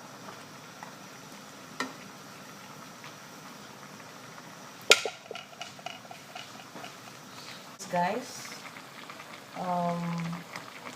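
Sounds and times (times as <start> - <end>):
utensil knocking against a cooking pot: 4.9 - 7.0.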